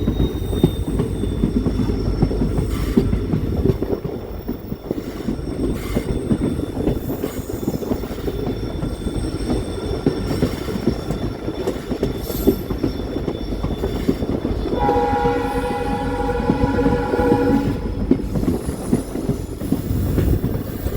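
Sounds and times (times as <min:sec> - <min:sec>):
train wheels rattling: 0:00.0 - 0:20.9
train horn blast: 0:14.8 - 0:18.8.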